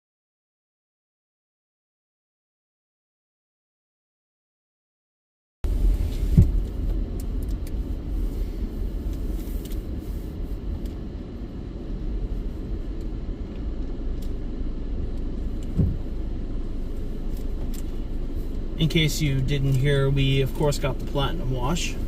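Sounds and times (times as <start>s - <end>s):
car rumbling inside cabin: 5.6s - 22.0s
low thumps: 5.7s - 7.1s, 15.6s - 16.2s.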